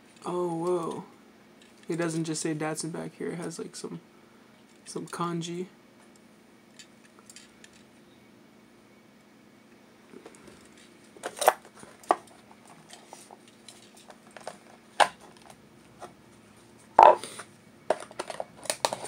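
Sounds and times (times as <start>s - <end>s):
toy and packaging handled: 10.2s - 16.1s, 17.9s - 19.0s.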